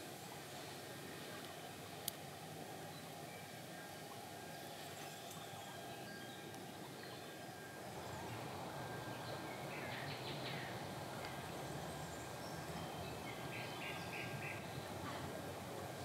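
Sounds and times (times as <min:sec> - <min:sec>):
steady low hiss: 0:00.0 - 0:16.0
faint bird calls: 0:12.1 - 0:15.4.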